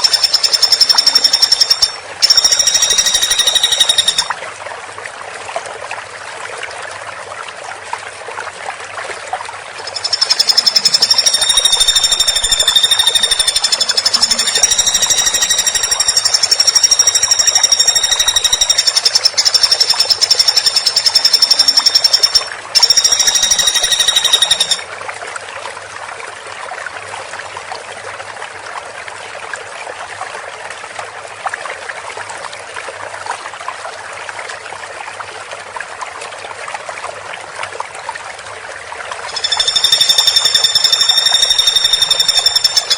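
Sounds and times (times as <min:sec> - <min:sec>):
woodpecker rattling trill: 0:00.0 - 0:04.3, 0:09.8 - 0:24.8, 0:39.3 - 0:42.9.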